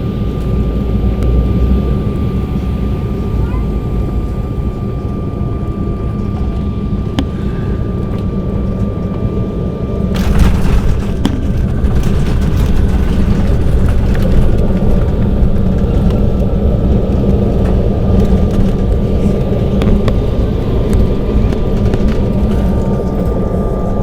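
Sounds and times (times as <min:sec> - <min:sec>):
engine and wheel roar: 0:00.0 - 0:24.0
cabin rattles and clicks: 0:10.2 - 0:23.6.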